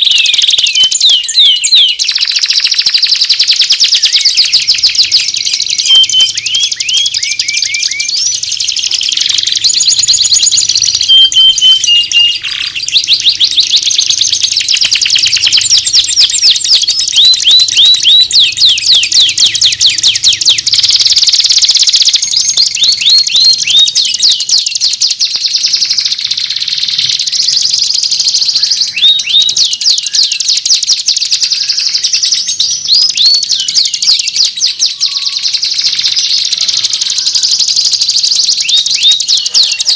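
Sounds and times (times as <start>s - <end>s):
songbird chirps and trills: 0.0s - 39.9s
downward-slurred whistled notes: 3.9s - 24.9s.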